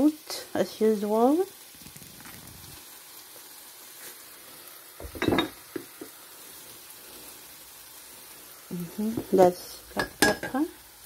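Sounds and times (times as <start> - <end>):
food sizzling in a pot: 0.0 - 11.0
spatula clattering against pot: 10.0 - 10.6.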